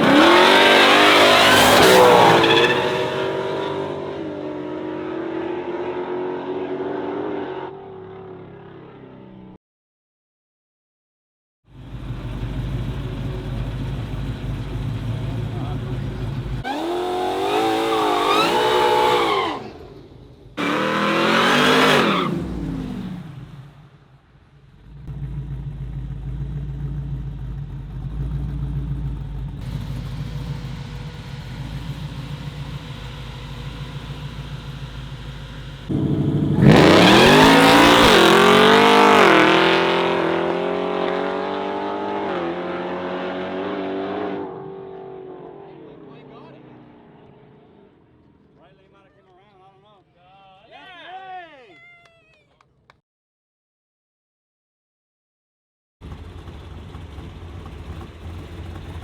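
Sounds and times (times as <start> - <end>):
race car engines revving: 0.0 - 9.3, 11.8 - 23.8, 24.7 - 49.2.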